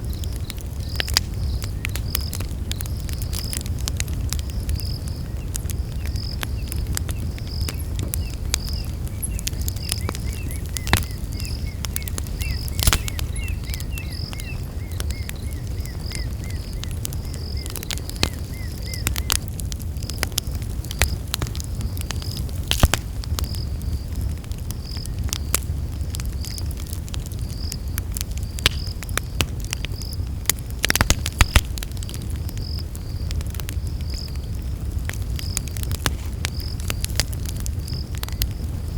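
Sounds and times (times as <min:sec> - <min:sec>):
campfire crackling and popping: 0:00.0 - 0:38.9
high insect chirp: 0:04.4 - 0:19.2
lower fast insect chirping: 0:08.6 - 0:16.8.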